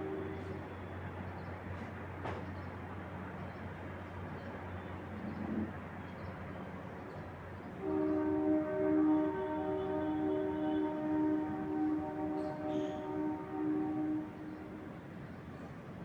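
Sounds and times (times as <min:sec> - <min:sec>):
distant horn tone: 0:00.0 - 0:00.9, 0:07.8 - 0:14.8.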